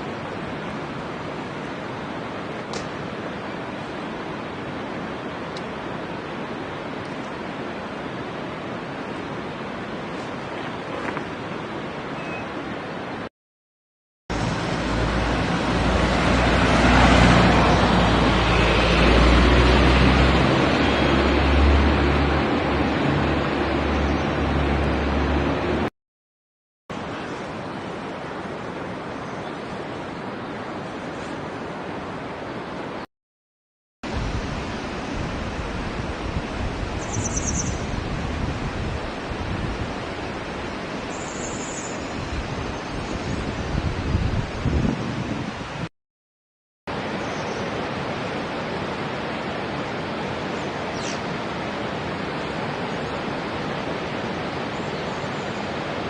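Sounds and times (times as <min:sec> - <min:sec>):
rushing outdoor noise: 0:00.0 - 0:13.3, 0:14.3 - 0:25.9, 0:26.9 - 0:33.1, 0:34.0 - 0:45.9, 0:46.9 - 0:56.0
high bird trills: 0:12.2 - 0:12.6, 0:37.0 - 0:37.8
loud steady rushing noise: 0:14.3 - 0:25.9.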